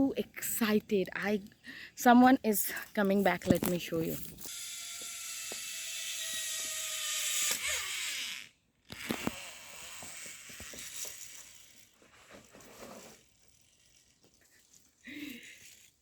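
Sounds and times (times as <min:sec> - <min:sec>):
zipline pulleys whirring on cable: 0:04.1 - 0:16.0.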